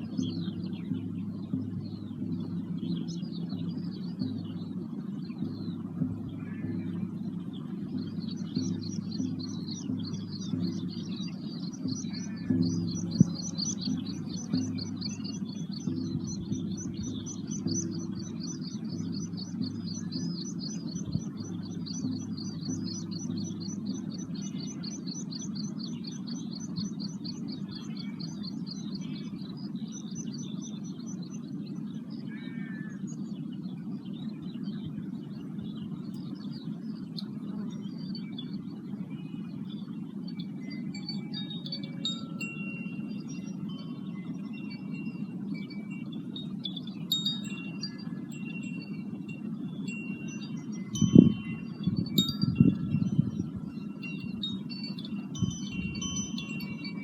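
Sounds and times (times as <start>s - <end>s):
steady low rumble: 0.0s - 32.3s, 33.0s - 57.0s
short bird calls: 11.8s - 15.2s, 32.3s - 33.2s.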